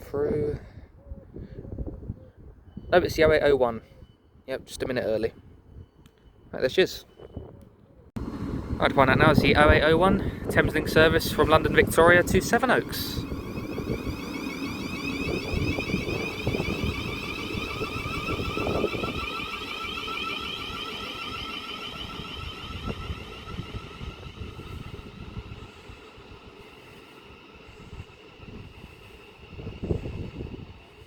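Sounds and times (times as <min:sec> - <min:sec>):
electric train motor whine: 0:08.2 - 0:31.0
wheels rumbling on track: 0:08.2 - 0:31.0.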